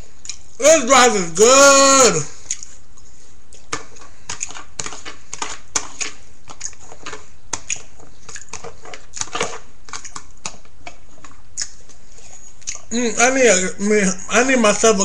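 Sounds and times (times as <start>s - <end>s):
mouth chewing wet smacks: 0.1s - 0.6s, 2.4s - 12.9s.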